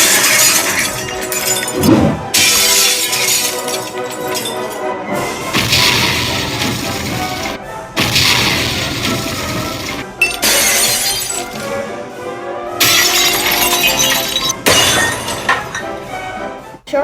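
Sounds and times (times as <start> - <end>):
dishes and glass shattering: 0.0 - 4.8, 8.0 - 11.7, 12.8 - 16.0
background music: 0.0 - 17.0.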